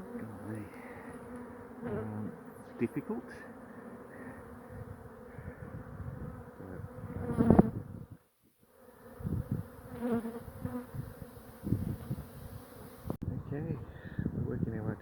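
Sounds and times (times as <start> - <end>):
honeybees buzzing: 0.0 - 13.2.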